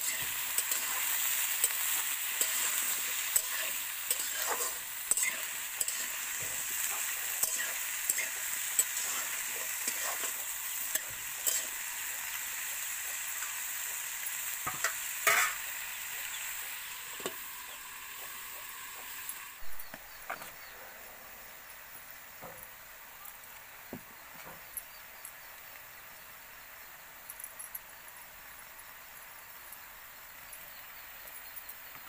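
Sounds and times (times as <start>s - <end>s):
spatula scraping and tapping pan: 0.0s - 11.8s, 14.6s - 15.7s, 17.2s - 17.4s
vegetables sizzling in oil: 0.0s - 32.0s.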